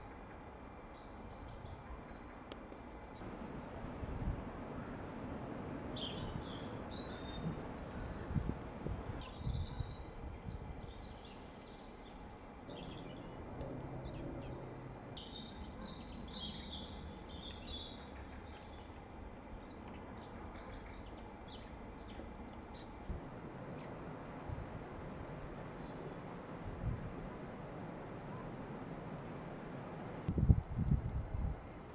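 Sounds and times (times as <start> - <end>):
low outdoor rumble: 0.0 - 31.9
small birds chirping and trilling: 14.0 - 24.1.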